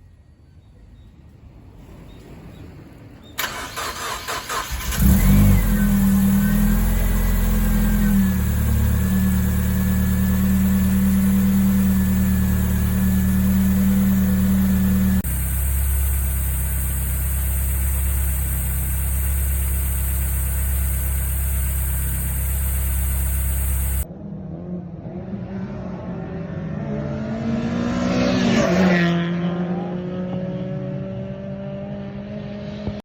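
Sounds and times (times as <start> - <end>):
car engine running: 3.4 - 24.1
engine idling and revving: 3.4 - 33.0.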